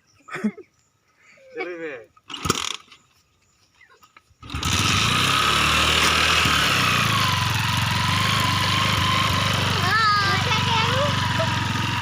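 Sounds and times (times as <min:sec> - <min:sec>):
small motorcycle engine running: 0:04.4 - 0:12.0.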